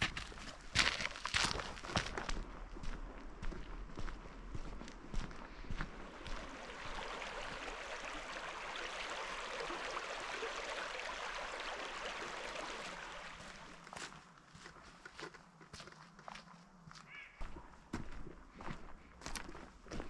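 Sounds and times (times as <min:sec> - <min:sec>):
river water rushing: 0:06.0 - 0:13.8.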